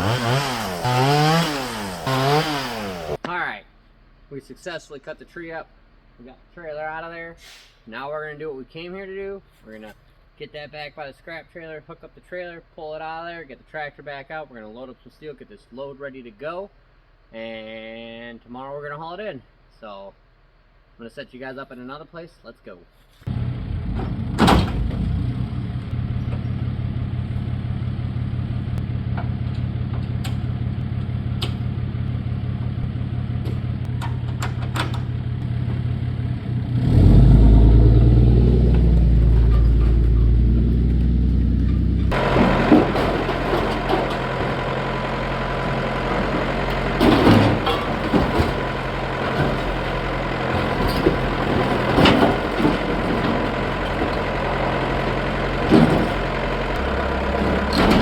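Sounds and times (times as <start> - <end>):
truck engine running: 0.0 - 3.2, 23.3 - 58.0
knocks and clanks: 23.3 - 25.2, 29.1 - 31.8, 32.7 - 35.9, 38.5 - 45.1, 46.0 - 58.0.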